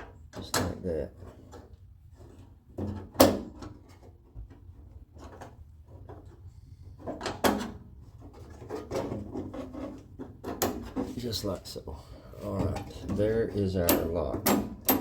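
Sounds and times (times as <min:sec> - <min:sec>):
metal clicks and knocks of door lock: 0:13.8 - 0:15.0.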